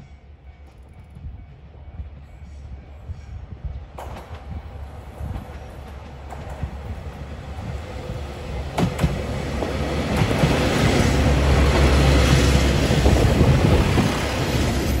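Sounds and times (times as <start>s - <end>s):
railcar engine rumble: 0.0s - 15.0s
wheel and rail noise: 3.9s - 15.0s.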